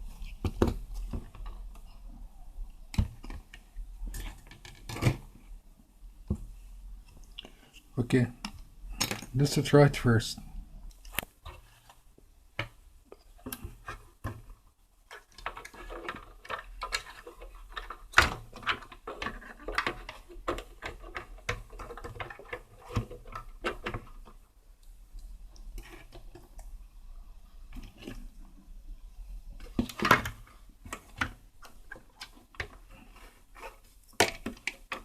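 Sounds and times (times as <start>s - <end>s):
hands clicking and tapping on parts: 10.8s - 26.8s, 29.6s - 35.0s.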